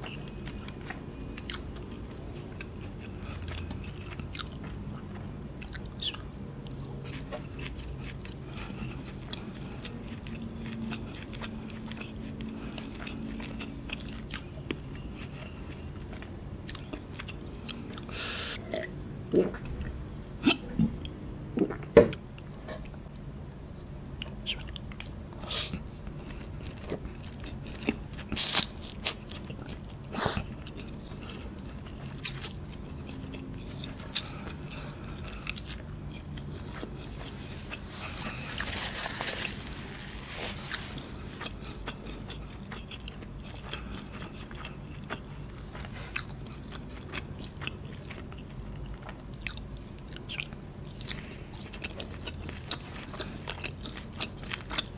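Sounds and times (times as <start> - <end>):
chewing and mouth smacks: 24.2 - 38.8, 41.0 - 54.9.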